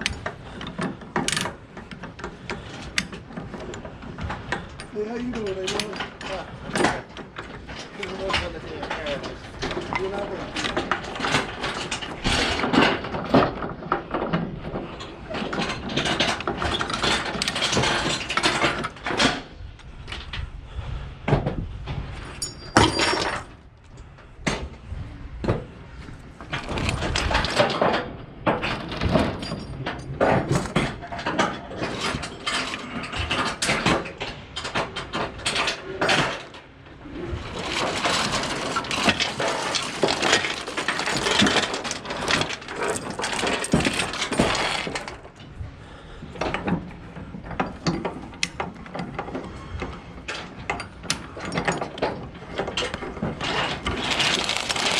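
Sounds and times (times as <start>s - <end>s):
metal clicks and clanks: 0.0s - 14.4s, 37.5s - 45.4s, 50.3s - 54.9s
rustling and scraping: 25.6s - 29.6s, 30.2s - 45.5s, 51.2s - 54.9s
ratcheting: 37.6s - 45.2s, 53.8s - 54.9s.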